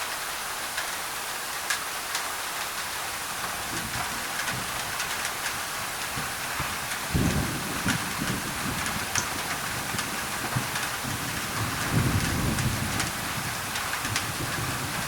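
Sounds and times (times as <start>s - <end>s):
rain on a tin roof: 0.0s - 15.0s
thunder rumbling: 3.4s - 15.0s.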